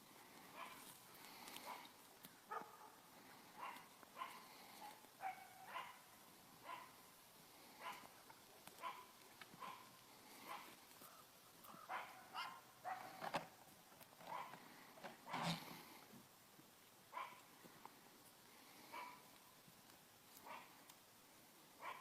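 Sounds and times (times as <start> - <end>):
dog barking faintly: 0.5 - 1.0, 1.6 - 7.1, 7.8 - 13.3, 14.2 - 14.6, 17.1 - 17.5, 18.9 - 19.4, 20.4 - 20.8, 21.8 - 22.0.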